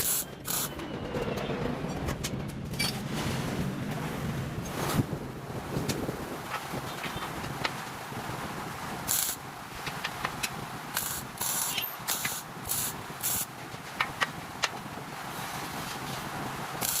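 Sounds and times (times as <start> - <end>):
short hissing bursts: 11.0 - 13.5.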